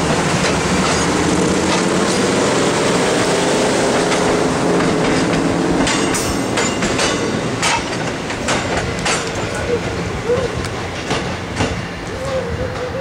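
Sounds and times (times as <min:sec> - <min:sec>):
train wheels clacking over rail joints: 0:00.0 - 0:13.0
steel wheels squealing on rails: 0:05.0 - 0:13.0.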